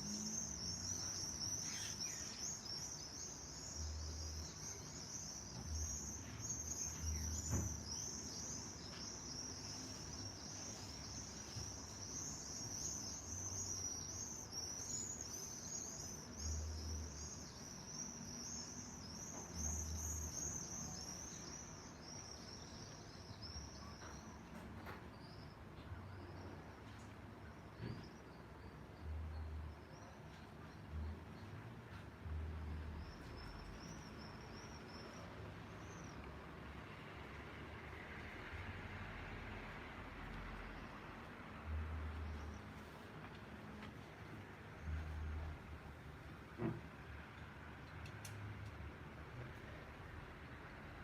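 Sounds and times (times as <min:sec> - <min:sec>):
small birds chirping: 0:00.0 - 0:38.8.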